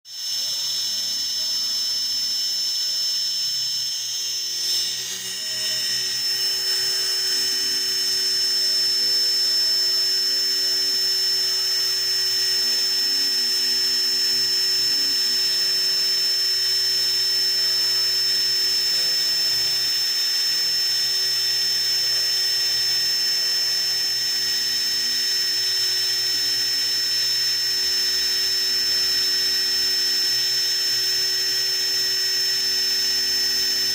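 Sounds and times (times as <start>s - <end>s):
cnc machine whining: 0.1s - 33.9s.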